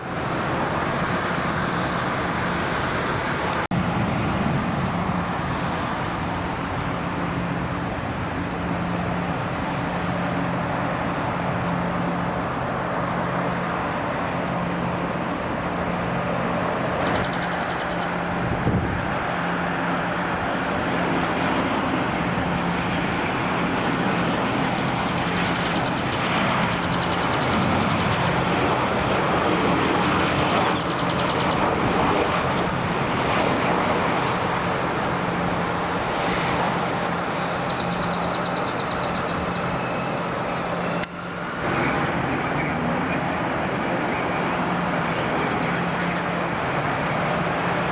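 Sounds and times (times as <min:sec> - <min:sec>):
jet engine rushing: 0:00.0 - 0:47.9
faint high whines: 0:23.4 - 0:29.4.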